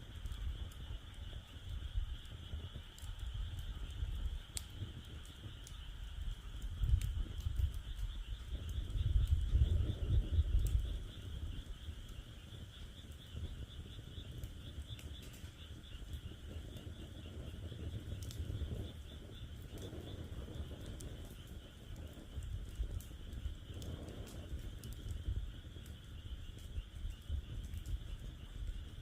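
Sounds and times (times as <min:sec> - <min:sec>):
campfire wood crackling: 0:00.0 - 0:29.0
frogs calling: 0:00.1 - 0:29.0.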